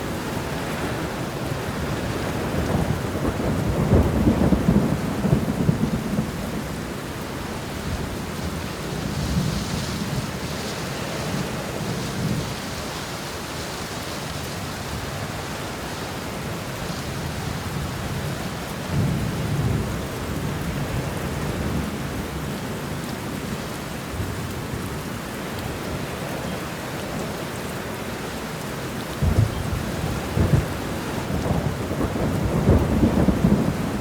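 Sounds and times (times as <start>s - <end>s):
steady rain: 0.0s - 34.0s
rolling thunder: 0.2s - 7.0s, 29.1s - 34.0s.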